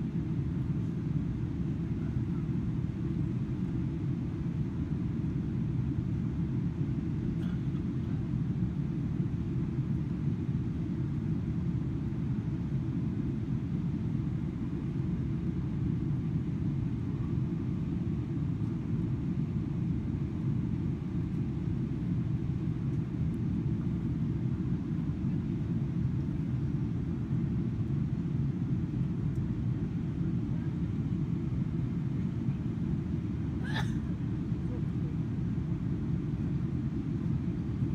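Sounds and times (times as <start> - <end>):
airliner cabin engine rumble: 0.0 - 37.9.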